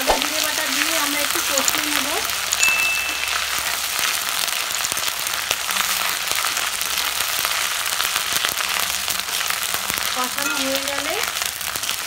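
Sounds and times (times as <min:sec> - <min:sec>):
paste sizzling in hot oil: 0:00.0 - 0:12.0
spatula stirring in pan: 0:03.5 - 0:12.0.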